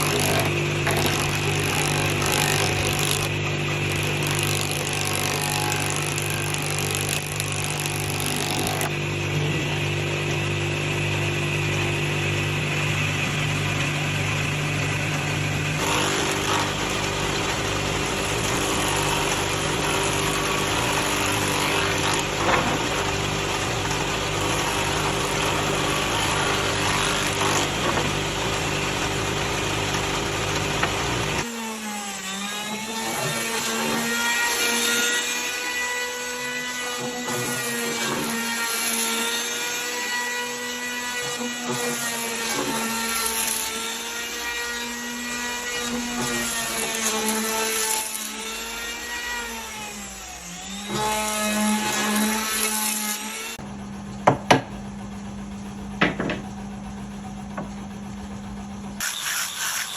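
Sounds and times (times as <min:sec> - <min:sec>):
motor whine under load: 0:00.0 - 0:32.2
low-pitched power tool running: 0:00.0 - 0:59.9.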